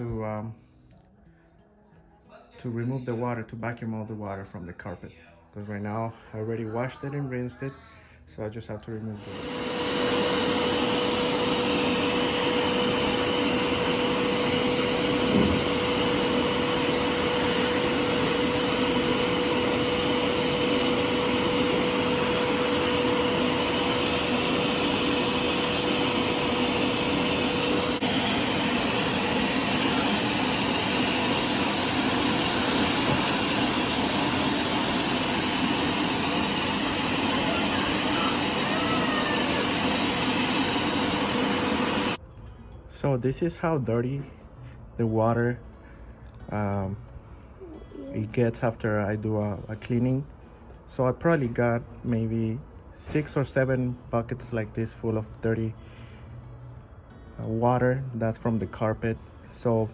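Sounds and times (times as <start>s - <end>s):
carpet cleaner suction motor whining: 9.2s - 42.2s.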